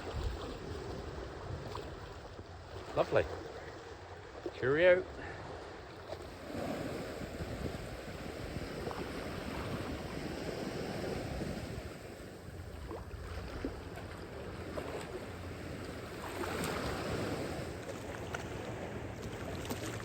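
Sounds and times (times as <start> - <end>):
wind on microphone: 0.0 - 2.4, 6.1 - 13.8
small sea waves washing in: 0.0 - 20.0.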